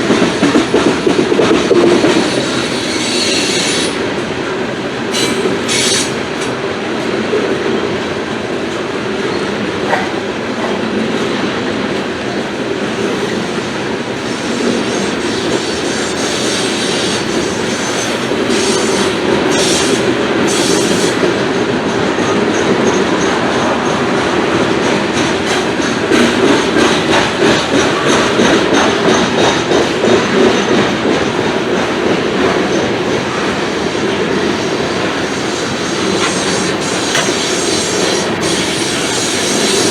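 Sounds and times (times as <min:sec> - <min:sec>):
train wheels clacking over rail joints: 0:00.0 - 0:39.9
wheel squeal: 0:02.2 - 0:04.0, 0:05.2 - 0:06.2, 0:14.2 - 0:21.2, 0:34.4 - 0:39.9.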